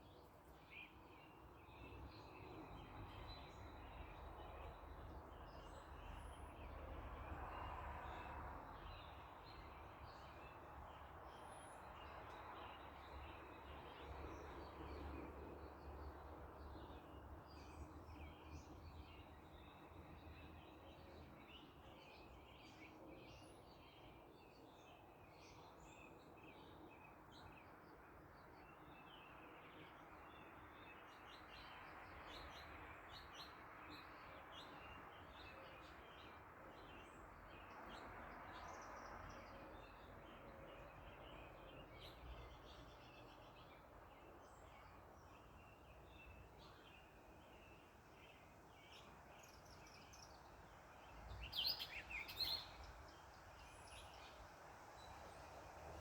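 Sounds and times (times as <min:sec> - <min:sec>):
small birds chirping: 0:41.3 - 0:55.4.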